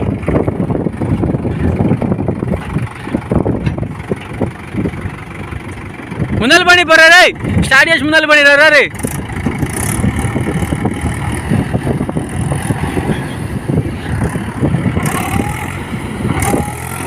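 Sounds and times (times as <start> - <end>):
tractor diesel engine clattering: 0.0 - 17.0.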